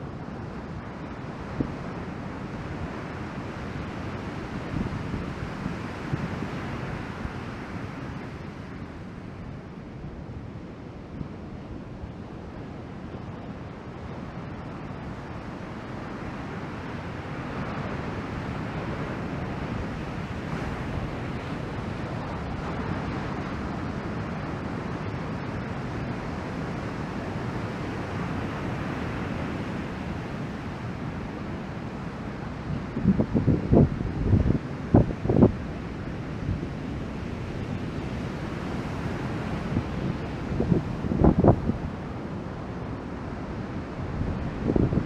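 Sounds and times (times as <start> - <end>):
wind buffeting microphone: 17.5 - 45.0.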